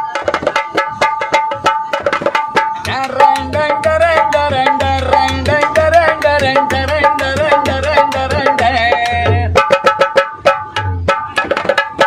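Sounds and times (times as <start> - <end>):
dholak drumming: 0.0 - 12.0.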